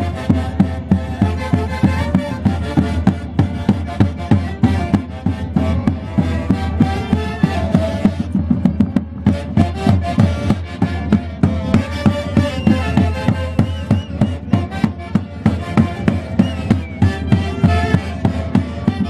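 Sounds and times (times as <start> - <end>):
steady drum beat: 0.0 - 19.0
sustained melody: 9.4 - 19.0.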